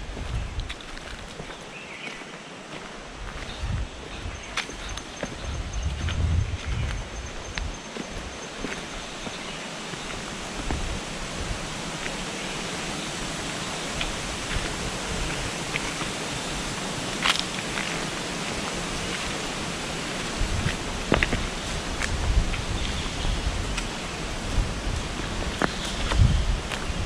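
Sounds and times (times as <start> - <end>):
flowing water rushing: 7.9 - 27.0.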